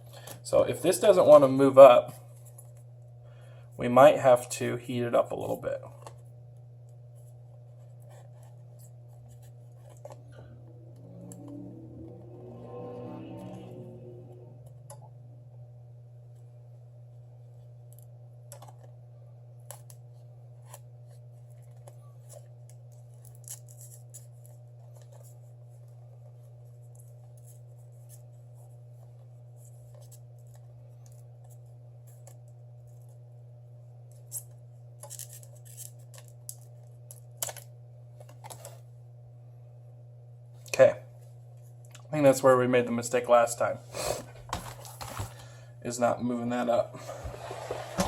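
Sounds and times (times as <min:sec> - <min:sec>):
faint low hum: 0:00.0 - 0:48.0.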